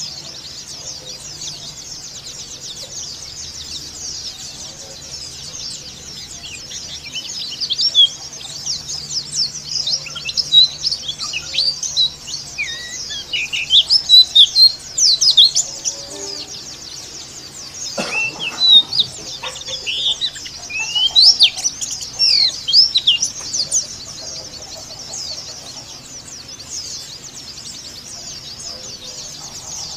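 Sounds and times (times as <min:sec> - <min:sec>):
bird chattering high chirps: 0:00.0 - 0:29.9
many birds chirping: 0:00.0 - 0:29.9.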